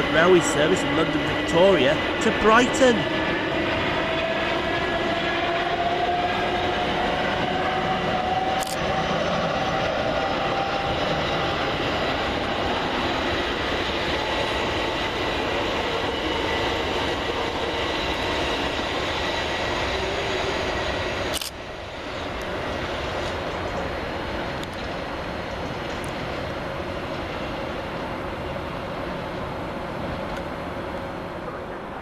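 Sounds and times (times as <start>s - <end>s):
train wheels rumbling on rail: 0.0s - 32.0s.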